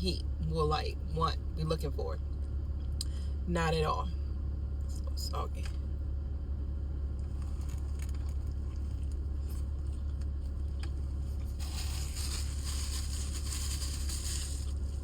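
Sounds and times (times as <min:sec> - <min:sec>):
steady low hum: 0:00.0 - 0:15.0
paper packaging rustling: 0:11.1 - 0:15.0.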